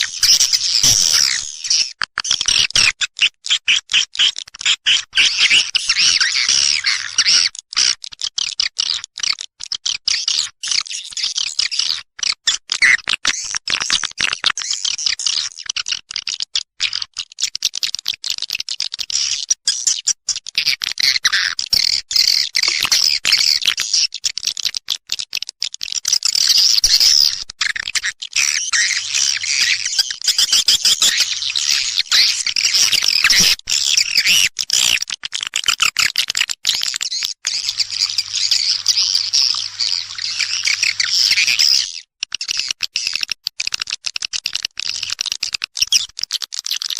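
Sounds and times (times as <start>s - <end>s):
swiftlets twittering: 37.5s - 41.6s.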